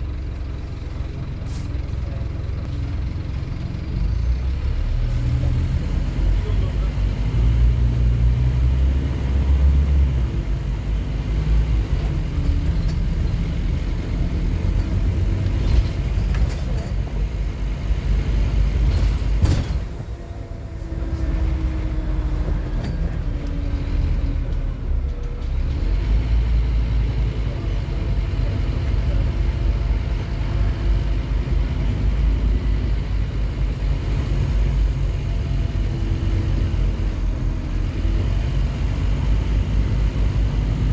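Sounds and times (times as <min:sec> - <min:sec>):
bus diesel engine rumbling: 0:00.0 - 0:40.9.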